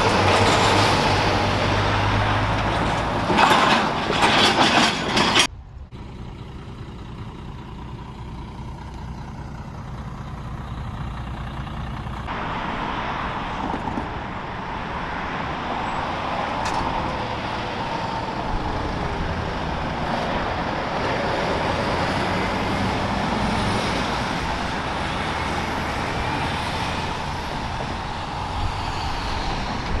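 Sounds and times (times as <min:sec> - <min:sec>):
heavy truck engine: 0:00.0 - 0:30.0
road noise: 0:00.0 - 0:30.0.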